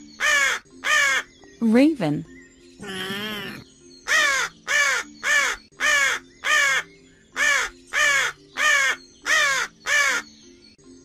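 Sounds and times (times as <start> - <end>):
raven cawing: 0.2 - 1.3, 2.8 - 10.3.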